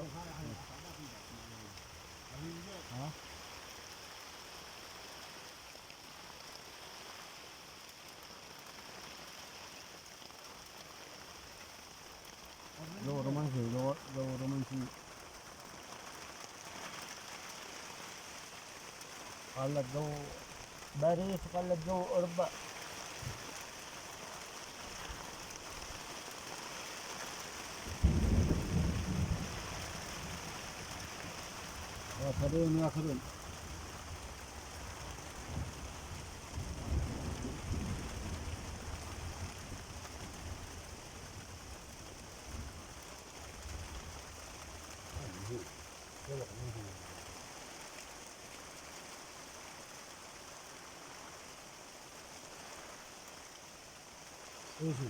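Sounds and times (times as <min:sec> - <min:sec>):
rain falling: 0:00.0 - 0:55.0
thunder rumble: 0:27.9 - 0:30.7.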